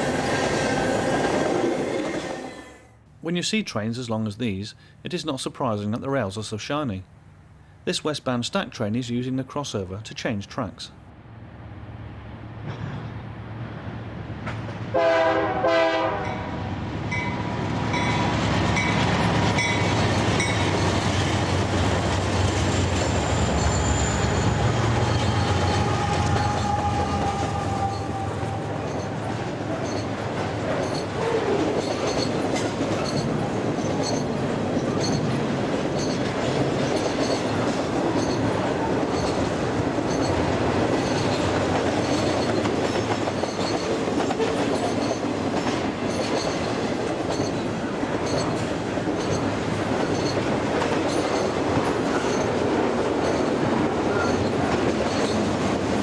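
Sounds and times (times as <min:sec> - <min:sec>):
diesel locomotive rumble: 0:11.1 - 0:56.0
train horn blast: 0:14.9 - 0:16.6, 0:25.3 - 0:29.0
wheels clacking over rail joints: 0:17.1 - 0:56.0
wheel squeal: 0:22.8 - 0:28.1.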